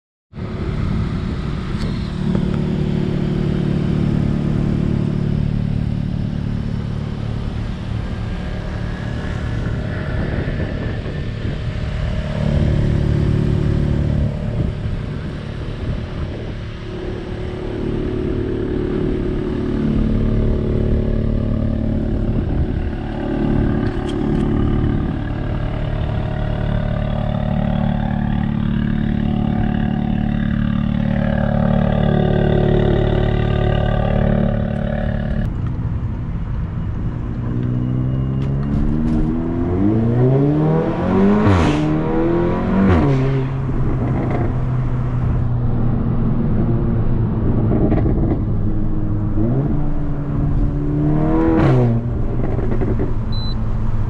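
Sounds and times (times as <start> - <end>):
car engine idling: 0.4 - 40.0, 52.0 - 54.0.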